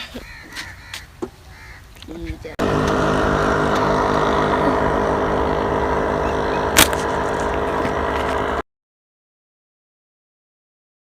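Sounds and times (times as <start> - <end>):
steady engine drone: 2.5 - 8.6.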